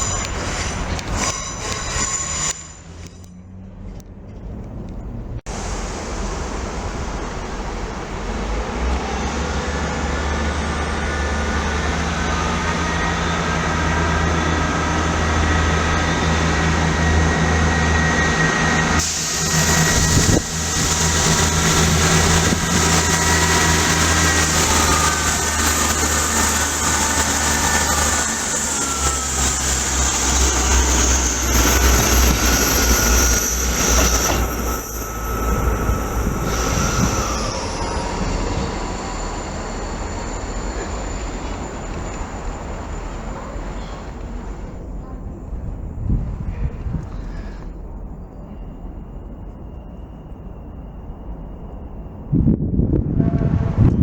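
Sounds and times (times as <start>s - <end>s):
train rumbling past: 0.0s - 54.0s
high whining tones: 9.2s - 43.4s
high hiss or squeal: 17.4s - 44.0s.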